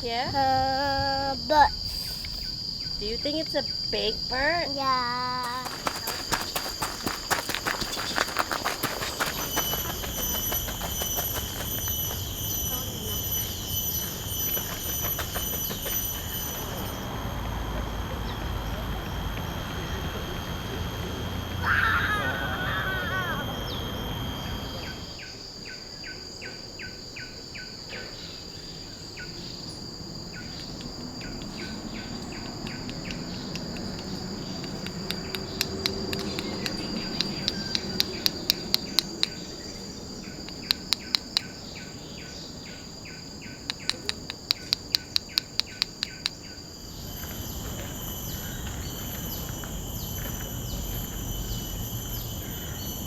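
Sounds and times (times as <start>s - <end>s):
insects buzzing and trilling: 0.0s - 53.0s
warbling bird call: 21.2s - 25.2s
sharp clicks: 32.4s - 39.5s, 40.4s - 41.6s, 43.6s - 46.5s.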